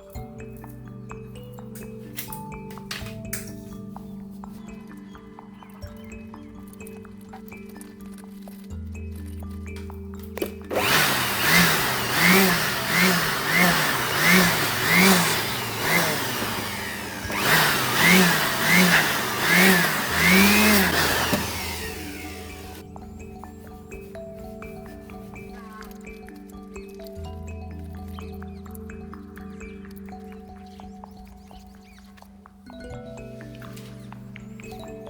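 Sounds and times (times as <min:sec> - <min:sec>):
background music: 0:00.0 - 0:35.0
small motor whining: 0:10.4 - 0:22.8.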